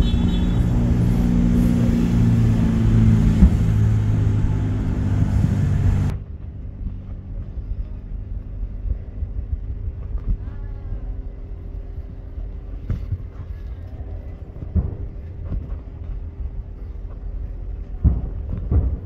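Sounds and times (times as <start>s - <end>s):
distant fireworks bang: 0.0s - 6.1s, 14.6s - 15.8s, 17.9s - 19.0s
loud rushing noise: 0.0s - 7.5s
car engine idling: 0.0s - 19.0s.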